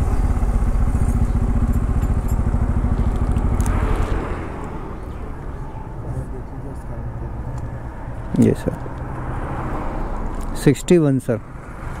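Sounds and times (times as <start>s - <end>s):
motorcycle engine running: 0.0s - 5.8s.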